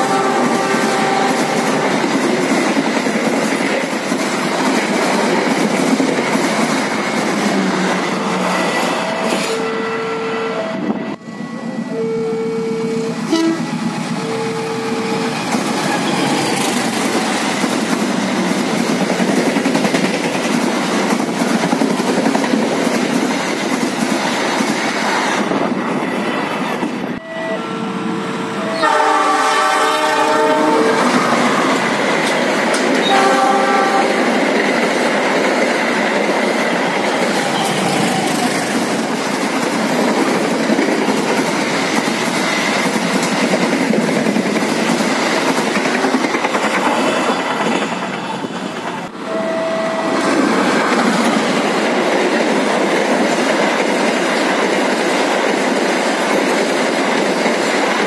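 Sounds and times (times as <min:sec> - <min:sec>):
short train horn tones: 0:00.0 - 0:01.9, 0:08.4 - 0:15.3, 0:27.2 - 0:31.5, 0:33.0 - 0:34.2, 0:49.2 - 0:50.3
locomotive chord horn: 0:00.0 - 0:02.0, 0:08.3 - 0:15.4, 0:27.2 - 0:31.8, 0:33.0 - 0:34.3, 0:49.2 - 0:50.4
train coaches rushing past: 0:00.0 - 0:12.1, 0:12.8 - 0:58.0.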